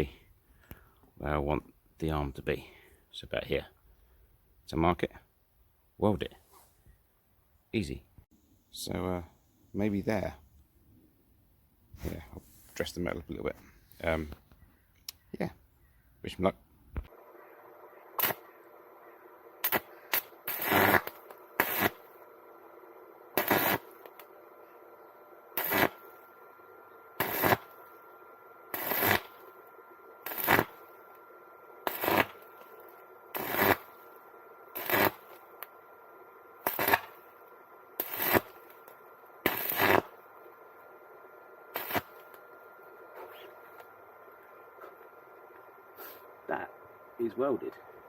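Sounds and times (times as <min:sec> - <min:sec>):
arc welding crackling bursts: 0:18.1 - 0:18.6, 0:19.6 - 0:22.3, 0:23.3 - 0:24.3, 0:25.5 - 0:26.4, 0:27.2 - 0:31.2, 0:31.8 - 0:35.8, 0:36.5 - 0:40.5, 0:41.7 - 0:43.9.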